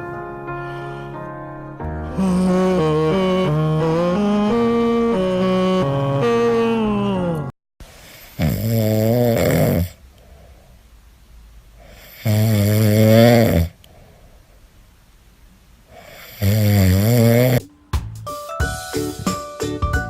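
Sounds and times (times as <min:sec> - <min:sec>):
faint breathing: 0:00.0 - 0:03.2, 0:09.8 - 0:11.1, 0:13.6 - 0:14.9, 0:15.8 - 0:16.7
pet snoring: 0:08.0 - 0:10.4, 0:11.8 - 0:13.8, 0:15.9 - 0:17.7.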